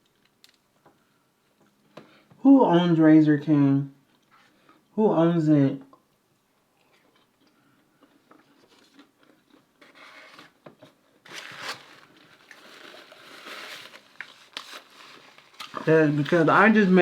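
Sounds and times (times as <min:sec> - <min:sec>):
person chewing crunchy food: 0:06.6 - 0:09.8.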